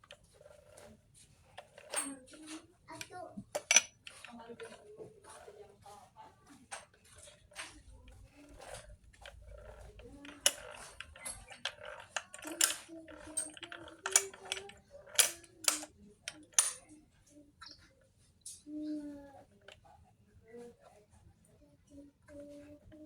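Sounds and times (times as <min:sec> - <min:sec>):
metallic clicks of hand tools: 0:03.6 - 0:04.4, 0:08.6 - 0:16.8.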